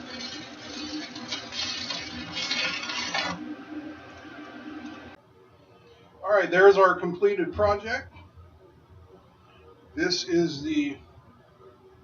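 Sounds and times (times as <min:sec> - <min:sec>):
welding arc crackling and sizzling: 0:00.0 - 0:05.2.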